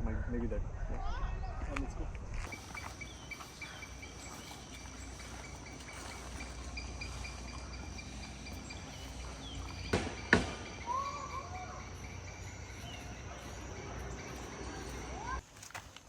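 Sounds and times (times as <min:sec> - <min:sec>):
bird calls: 0:02.4 - 0:15.4
high insect drone: 0:02.5 - 0:15.4
sharp knocks: 0:09.8 - 0:10.9.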